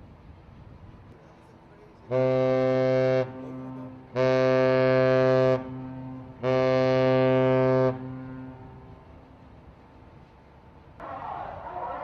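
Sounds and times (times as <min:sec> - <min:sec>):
ship's horn blasts: 0:02.0 - 0:09.6.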